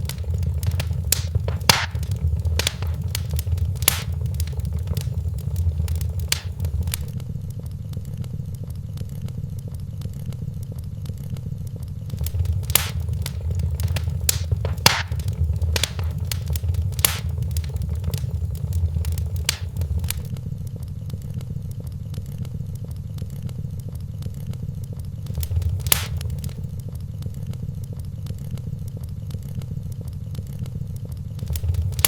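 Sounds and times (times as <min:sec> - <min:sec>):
low rumble: 0:00.0 - 0:07.1, 0:12.1 - 0:20.3, 0:25.3 - 0:26.8, 0:31.4 - 0:32.0
sharp fire pops: 0:00.0 - 0:07.2, 0:12.1 - 0:20.3, 0:25.3 - 0:26.8, 0:31.4 - 0:32.0
wood fire crackling: 0:00.0 - 0:07.2, 0:12.1 - 0:20.4, 0:25.2 - 0:26.9, 0:31.3 - 0:32.0.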